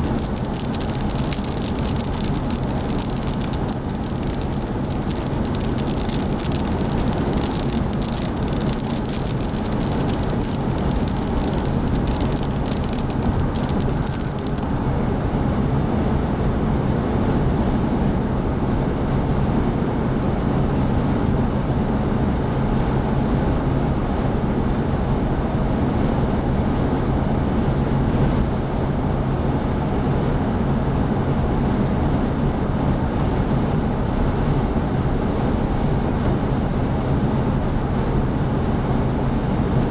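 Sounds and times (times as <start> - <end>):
sharp ticks patter: 0.0 - 14.8
low engine drone: 0.0 - 16.0
road and wind noise: 0.0 - 39.9.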